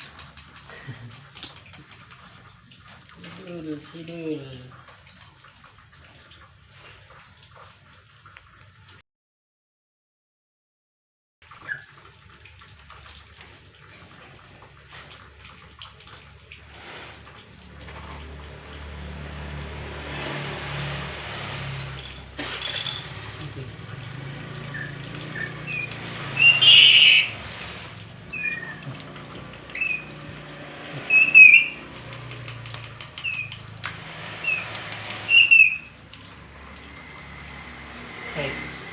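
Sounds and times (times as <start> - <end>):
bird squeaky chirps: 24.7 - 27.4, 28.3 - 28.9, 29.7 - 30.2, 31.0 - 31.9, 33.0 - 33.6, 34.4 - 34.7, 35.3 - 35.9
bird harsh screeches: 24.7 - 27.7, 28.3 - 28.8, 29.7 - 30.1, 31.0 - 31.8, 34.4 - 35.9.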